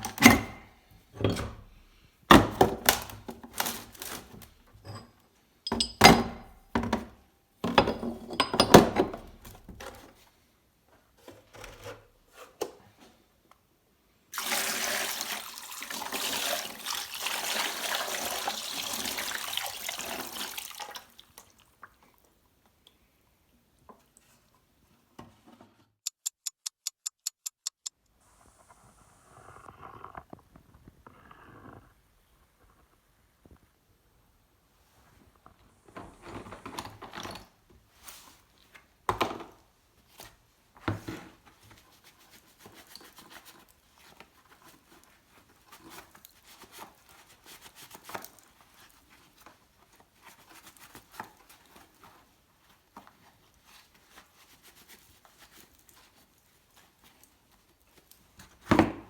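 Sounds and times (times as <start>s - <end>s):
metal vise parts knocking: 5.7s - 6.4s
sharp clicks: 26.0s - 27.9s.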